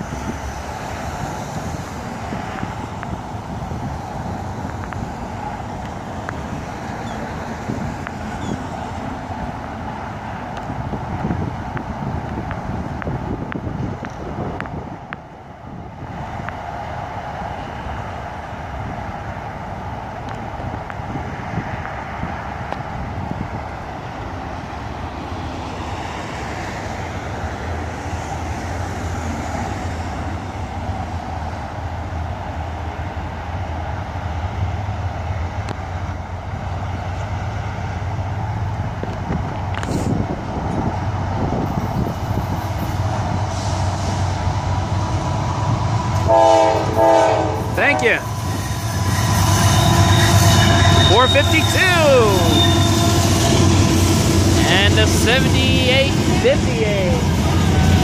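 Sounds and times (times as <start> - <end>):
diesel locomotive engine rumble: 0.0 - 58.0
road traffic noise: 0.0 - 58.0.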